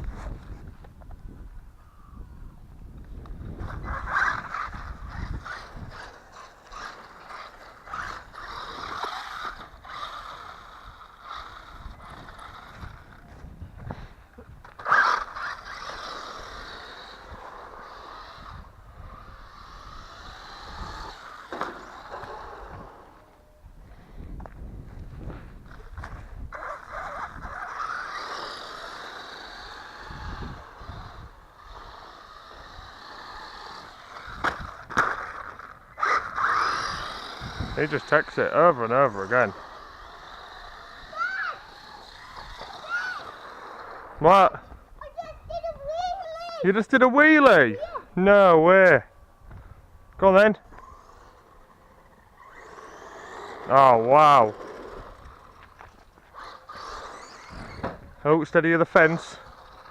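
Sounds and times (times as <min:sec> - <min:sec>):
toy car motor whirring: 0:02.8 - 0:48.4, 0:50.1 - 0:59.9.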